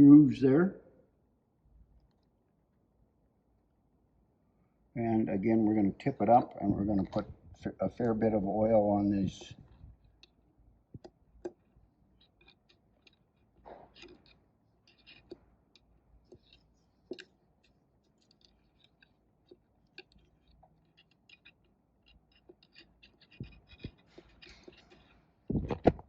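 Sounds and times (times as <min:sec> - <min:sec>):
metal parts clicking and scraping: 0:11.0 - 0:26.0.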